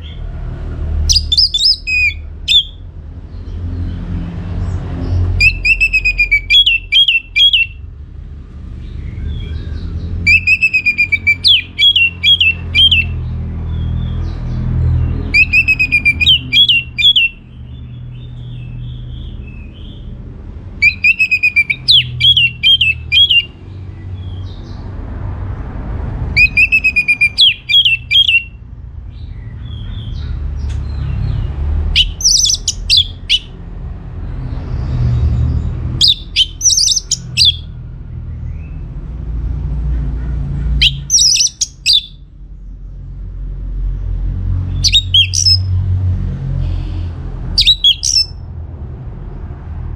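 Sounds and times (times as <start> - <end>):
thrush singing: 1.1 - 2.8, 5.4 - 7.8, 10.3 - 13.2, 15.3 - 17.4, 20.8 - 23.5, 26.4 - 28.5, 31.9 - 33.6, 36.0 - 37.7, 40.8 - 42.2, 44.8 - 45.7, 47.6 - 48.4.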